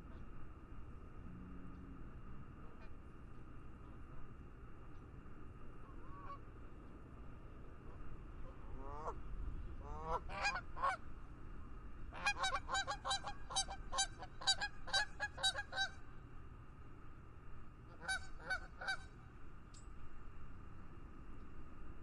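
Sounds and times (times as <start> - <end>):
low background noise: 0.0 - 22.0
geese honking: 9.8 - 11.0, 12.2 - 16.0, 17.9 - 19.1.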